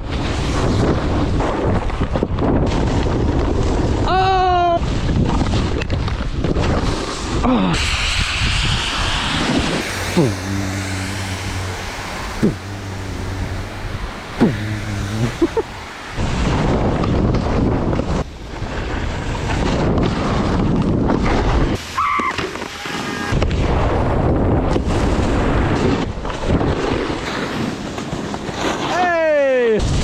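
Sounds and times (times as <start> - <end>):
wind buffeting camera: 4.8 - 10.2.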